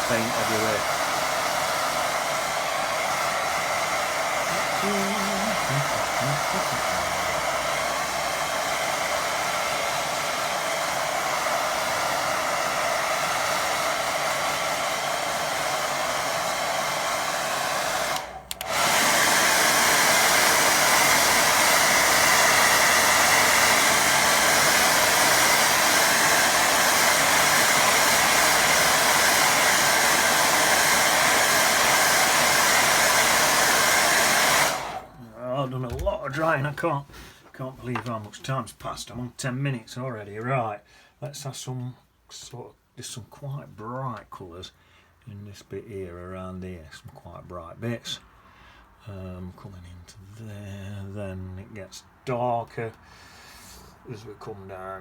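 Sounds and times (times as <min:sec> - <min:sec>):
hair dryer blowing: 0:00.0 - 0:35.5.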